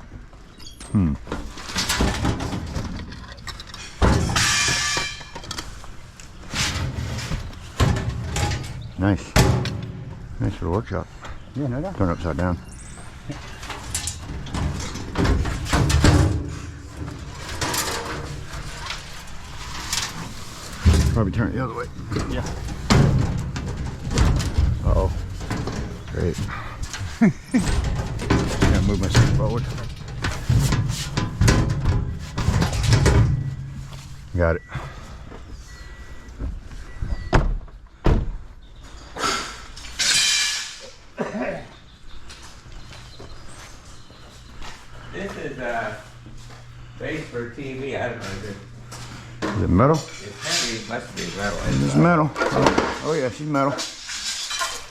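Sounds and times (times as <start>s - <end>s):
knocks and scraping of object: 1.3s - 10.4s, 13.4s - 34.3s.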